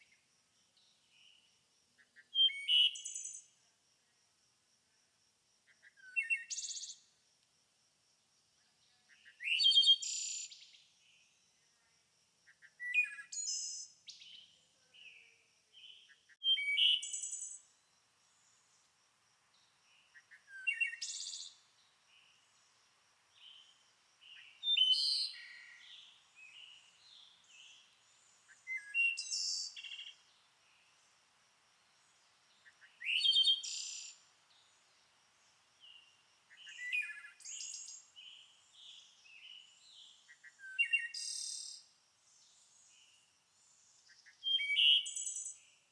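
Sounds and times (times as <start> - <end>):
soft bird chirps: 12.5 - 18.8, 19.5 - 31.0, 32.0 - 41.8
songbird singing buzzy trill: 12.6 - 18.8, 19.5 - 31.2, 31.8 - 45.9.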